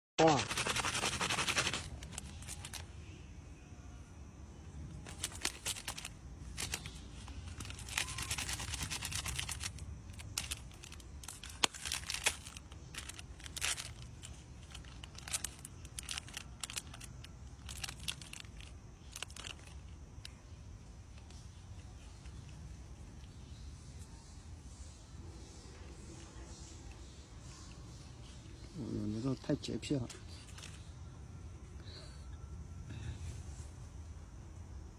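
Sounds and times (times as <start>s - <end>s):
rustling and crinkling: 0.4s - 2.9s, 4.9s - 23.6s, 30.1s - 31.0s.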